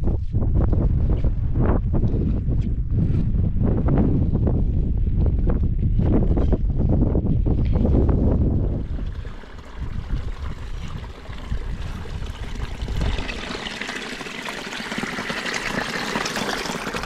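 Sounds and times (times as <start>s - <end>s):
wind buffeting microphone: 0.0s - 17.0s
rush of water: 8.8s - 17.0s
water running and trickling: 8.8s - 17.0s.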